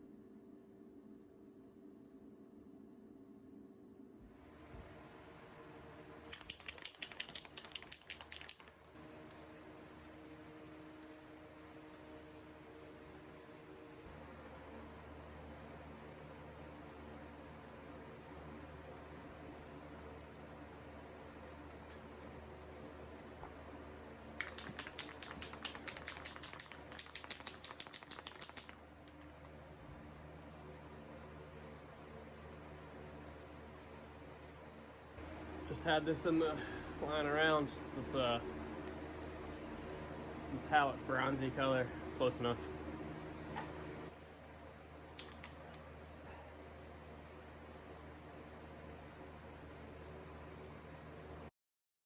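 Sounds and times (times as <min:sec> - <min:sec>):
spray can ball rattling: 0:06.2 - 0:14.0, 0:24.4 - 0:29.2
spray can hissing bursts: 0:06.4 - 0:14.1.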